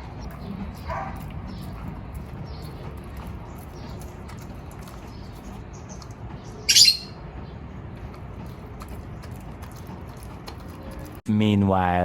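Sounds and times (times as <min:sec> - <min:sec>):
low background hum: 0:00.0 - 0:12.0
harsh bird call: 0:06.7 - 0:07.2.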